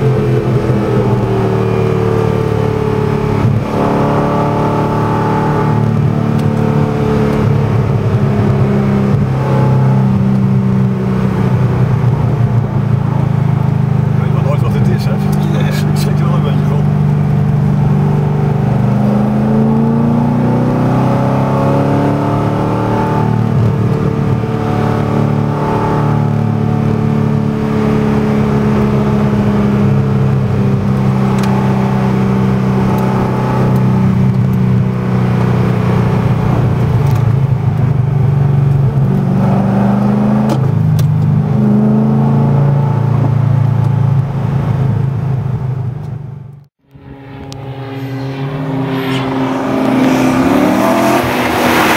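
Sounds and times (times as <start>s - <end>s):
car engine under way: 0.0s - 51.9s.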